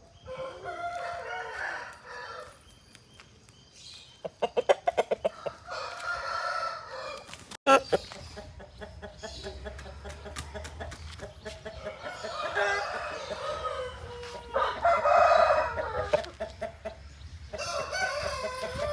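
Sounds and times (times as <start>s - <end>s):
rooster crowing: 0.3s - 2.6s, 5.4s - 7.3s, 11.9s - 16.2s, 17.6s - 18.9s
chickens clucking: 3.9s - 18.9s.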